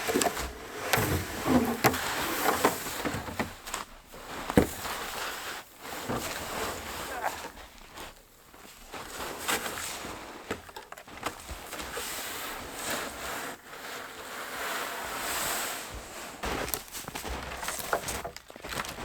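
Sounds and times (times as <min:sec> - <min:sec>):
footsteps crunching through snow: 0:15.9 - 0:19.0.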